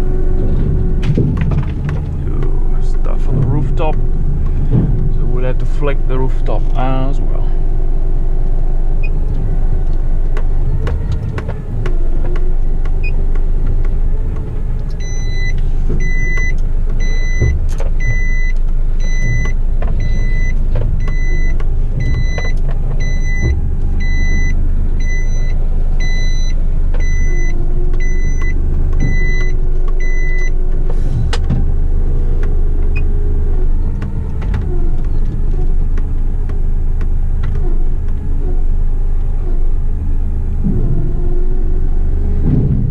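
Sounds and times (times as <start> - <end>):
diesel truck engine rumbling: 0.0 - 42.9
electronic warning beeper: 15.0 - 30.5.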